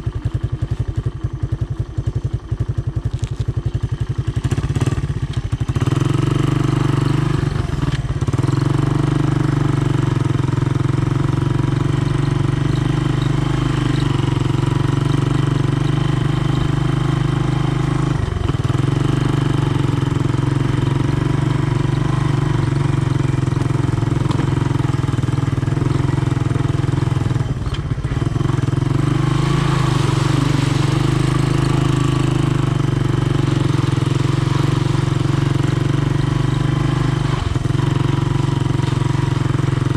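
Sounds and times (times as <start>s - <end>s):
single-cylinder engine running: 0.0s - 39.9s.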